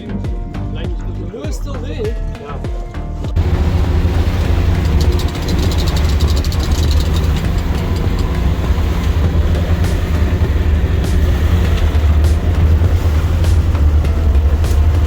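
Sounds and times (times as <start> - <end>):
boat engine rumbling: 0.0 - 15.0
fast even clicks: 4.4 - 15.0.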